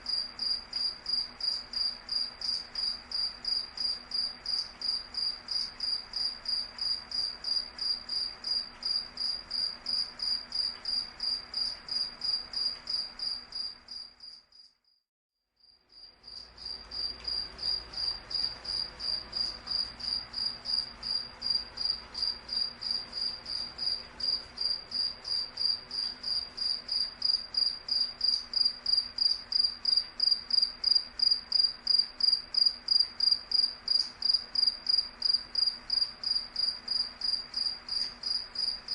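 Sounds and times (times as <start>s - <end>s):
cricket chirping: 0.0s - 15.0s, 15.6s - 38.9s.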